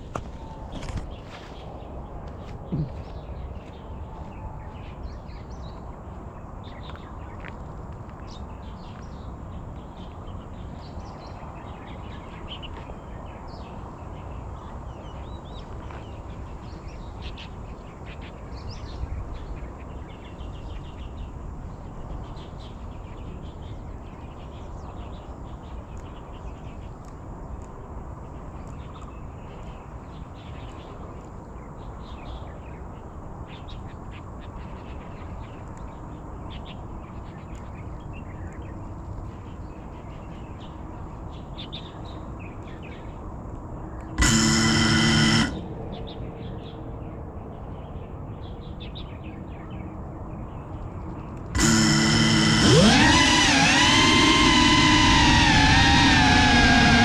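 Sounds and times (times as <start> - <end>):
low outdoor rumble: 51.5 - 57.0.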